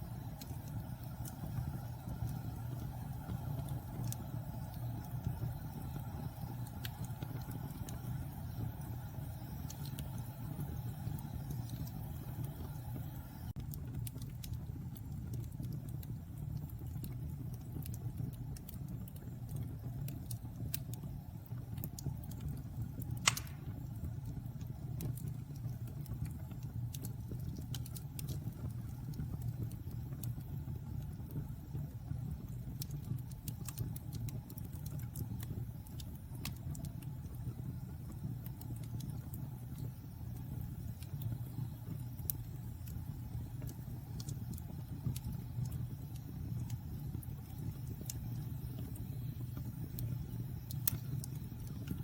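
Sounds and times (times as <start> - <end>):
fire crackling: 0.0 - 52.0
wood fire rumbling: 0.0 - 52.0
loud fire pop: 23.2 - 23.9.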